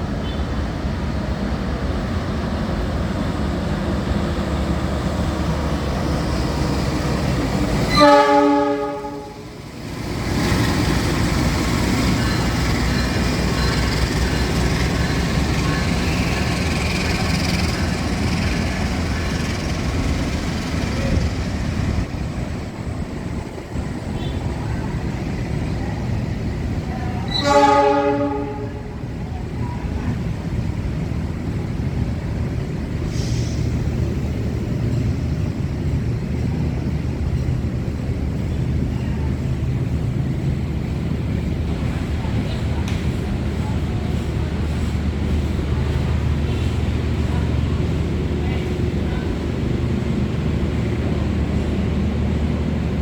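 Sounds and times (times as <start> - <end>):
train rumbling: 0.0 - 53.0
locomotive horn blast: 7.8 - 9.5, 27.3 - 29.0.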